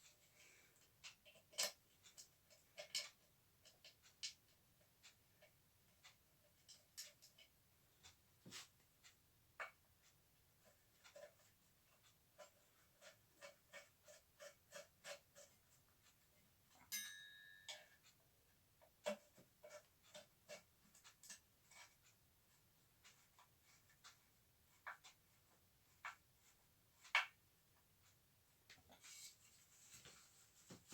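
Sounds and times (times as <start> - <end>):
plastic parts clicking and tapping: 0.8 - 8.2
ringing metallic clink: 16.9 - 17.9.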